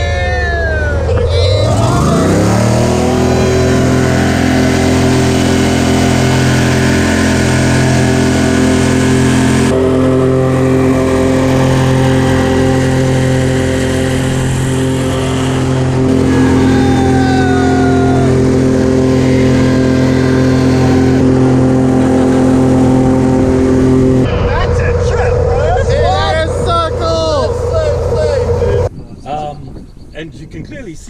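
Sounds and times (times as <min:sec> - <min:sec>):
airboat engine and propeller: 0:00.0 - 0:28.9.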